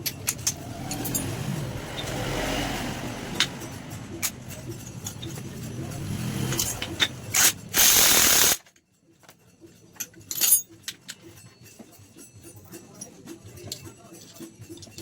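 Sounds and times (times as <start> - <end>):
ratchet wrench clicking: 3.4 - 8.6
loud hiss: 7.4 - 8.6.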